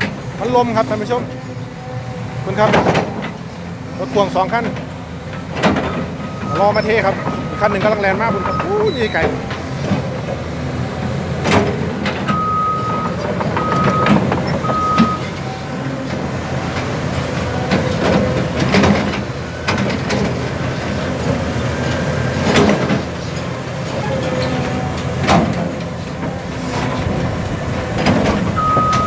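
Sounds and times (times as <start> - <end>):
diesel dump truck running: 0.0 - 29.0
reversing alarm beeps: 6.2 - 9.2, 12.3 - 15.8, 28.6 - 29.0
metallic clanks and knocks: 24.1 - 29.0.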